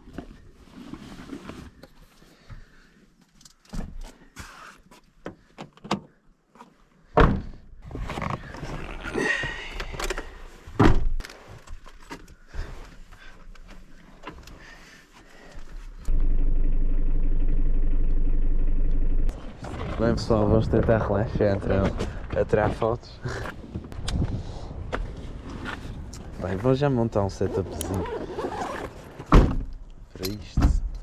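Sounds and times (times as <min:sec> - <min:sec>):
car engine running: 0:16.1 - 0:19.4.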